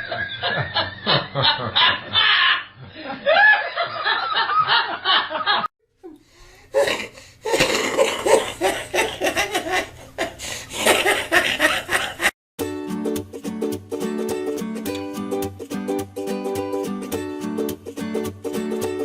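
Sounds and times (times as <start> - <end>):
people laughing: 0.0 - 5.7.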